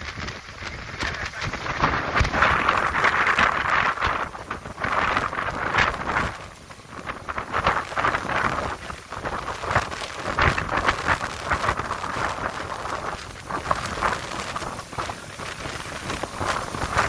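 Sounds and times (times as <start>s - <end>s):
heavy rain pelting down: 0.0s - 17.0s.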